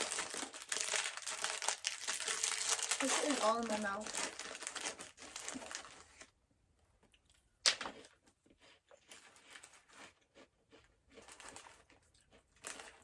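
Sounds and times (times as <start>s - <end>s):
crackers crunching: 0.0s - 6.4s, 7.1s - 13.0s
snack packaging crinkling: 0.0s - 6.4s, 7.6s - 13.0s.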